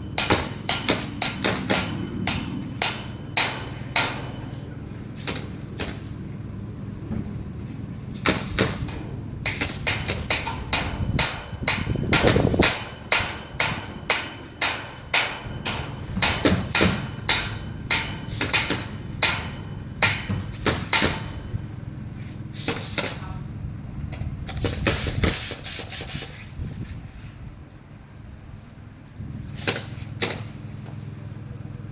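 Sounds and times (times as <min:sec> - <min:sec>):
hammer blows: 0:00.0 - 0:06.2, 0:08.2 - 0:23.3
steady low hum: 0:00.0 - 0:31.9.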